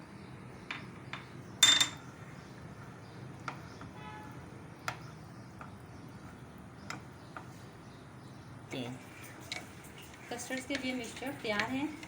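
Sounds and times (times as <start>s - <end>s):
spoon clinking against cup: 1.6s - 2.0s.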